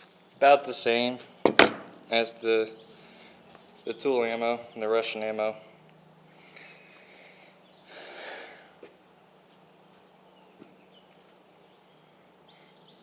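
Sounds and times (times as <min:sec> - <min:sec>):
faint bird or insect chirps: 0:05.6 - 0:13.0.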